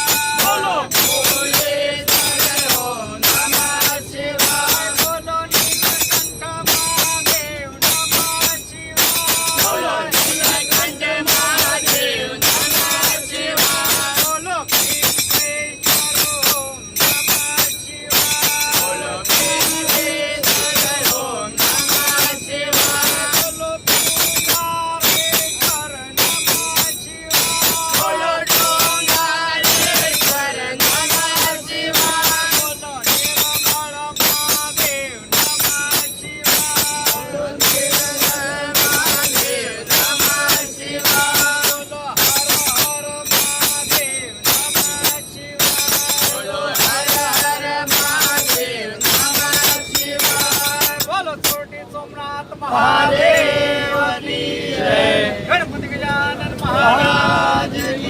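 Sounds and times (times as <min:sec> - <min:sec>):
group singing devotional song: 0:00.0 - 0:51.6, 0:52.2 - 0:58.0
jingling hand percussion: 0:00.0 - 0:51.8, 0:52.8 - 0:54.0, 0:56.7 - 0:58.0.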